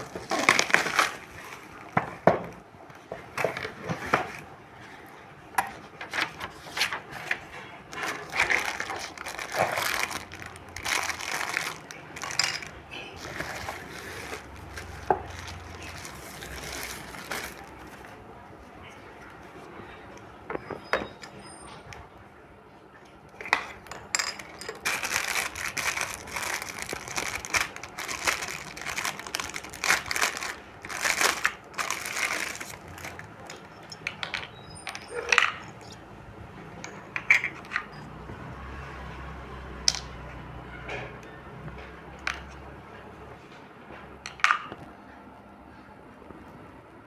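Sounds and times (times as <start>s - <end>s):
dense crinkling: 0.0s - 5.1s, 5.8s - 19.8s, 23.4s - 34.2s.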